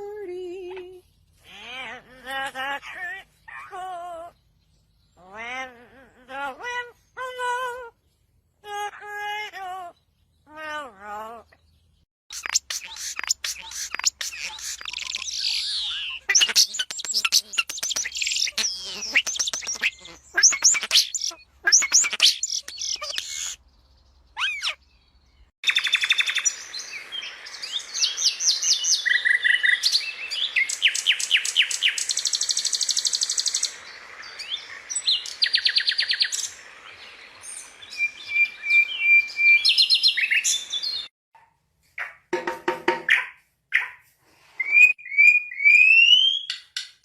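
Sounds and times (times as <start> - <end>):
songbirds chirping and trilling: 0.3 - 41.1, 44.7 - 47.0.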